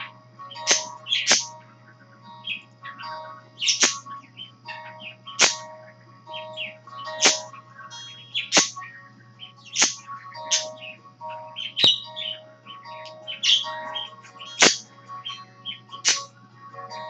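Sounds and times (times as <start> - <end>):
loud sharp chirps: 0.0 - 1.6, 2.2 - 16.3
parakeets chirping and warbling: 0.0 - 17.0
song playing: 9.4 - 17.0.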